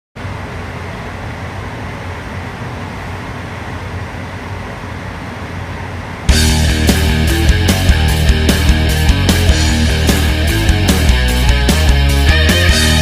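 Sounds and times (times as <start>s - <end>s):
low mechanical hum: 0.2s - 13.0s
loud rock music: 6.3s - 13.0s.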